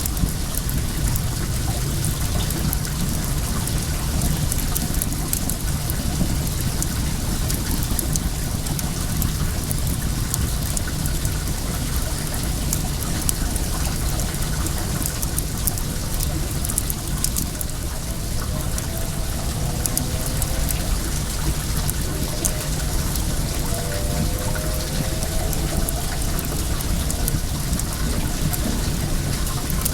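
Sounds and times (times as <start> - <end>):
water pouring and running: 0.0 - 29.9
wood fire crackling: 2.0 - 29.9
faint rising whine: 12.9 - 29.9.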